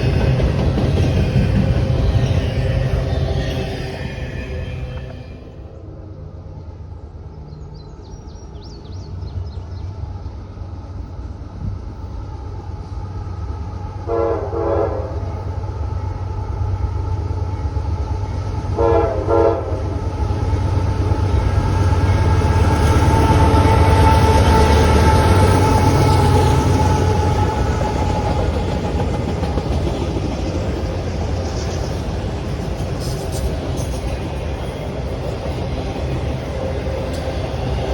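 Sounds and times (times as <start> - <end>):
locomotive engine rumble: 0.0 - 37.9
locomotive chime horn: 14.0 - 15.5, 18.7 - 19.9.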